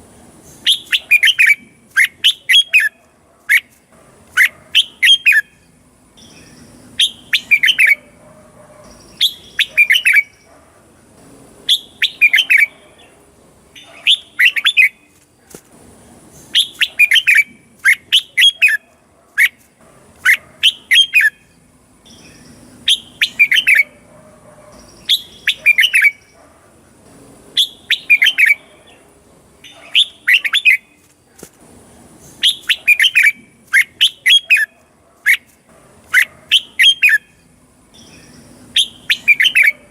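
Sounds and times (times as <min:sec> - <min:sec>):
bulbul whistled song: 0:00.6 - 0:03.8, 0:04.4 - 0:08.1, 0:08.9 - 0:10.5, 0:11.7 - 0:12.8, 0:13.8 - 0:15.2, 0:16.5 - 0:18.8, 0:20.2 - 0:24.0, 0:24.8 - 0:26.4, 0:27.6 - 0:28.6, 0:29.6 - 0:31.0, 0:32.4 - 0:35.5, 0:36.1 - 0:37.4, 0:38.0 - 0:39.9.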